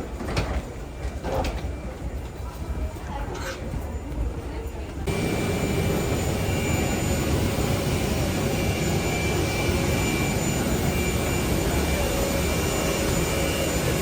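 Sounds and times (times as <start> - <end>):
faint high whining tones: 3.9 - 14.0
jet engine noise in cabin: 5.0 - 14.0.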